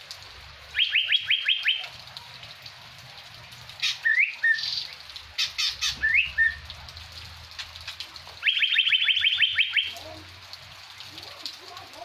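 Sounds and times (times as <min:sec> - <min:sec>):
bird whistling call: 0:03.8 - 0:04.7, 0:05.6 - 0:06.6, 0:08.4 - 0:10.0.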